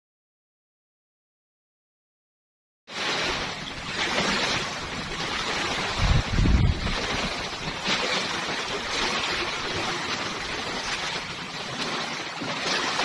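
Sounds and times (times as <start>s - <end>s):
sea noise: 2.9s - 13.0s
wind: 2.9s - 13.0s
wind buffeting microphone: 3.2s - 12.2s.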